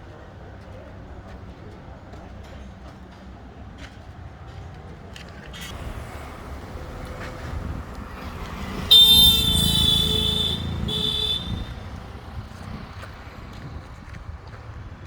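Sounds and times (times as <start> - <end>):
low engine rumble: 5.2 - 15.0
vehicle horn blasts: 8.2 - 12.3.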